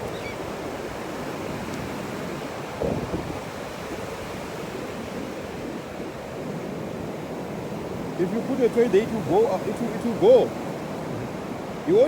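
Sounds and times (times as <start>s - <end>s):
wind on microphone: 0.0s - 8.2s
ocean surf washing on shore: 0.0s - 12.0s.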